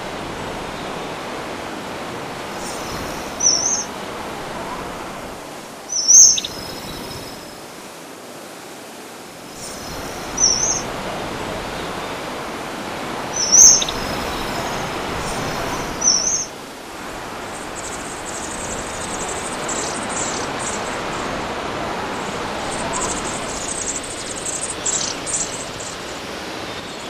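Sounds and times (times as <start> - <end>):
background hiss: 0.0 - 27.0
faint high twittering: 2.5 - 3.9, 5.9 - 7.6, 9.5 - 10.9, 13.3 - 16.5, 17.5 - 21.2, 22.2 - 27.0
bird calling: 2.5 - 5.0, 5.8 - 7.6, 9.5 - 10.9, 13.3 - 16.6, 22.2 - 27.0.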